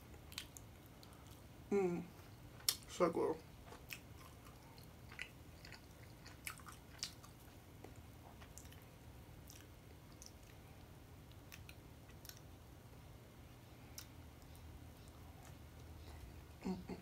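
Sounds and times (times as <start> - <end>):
person chewing bread: 0.1 - 1.6, 3.4 - 12.7, 13.7 - 16.5.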